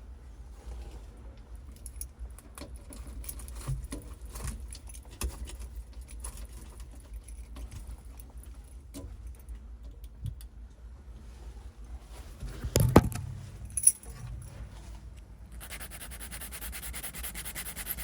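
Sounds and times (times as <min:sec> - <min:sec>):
light irregular clicks and clinks: 0:01.4 - 0:10.5, 0:13.5 - 0:15.3
steady low rumble: 0:10.7 - 0:15.6.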